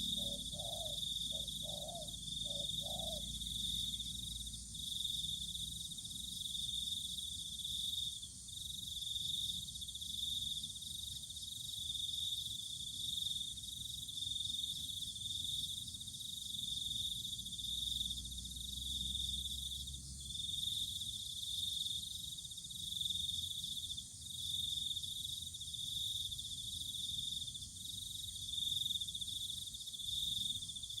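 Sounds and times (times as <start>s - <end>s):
cricket trilling: 0.0s - 31.0s.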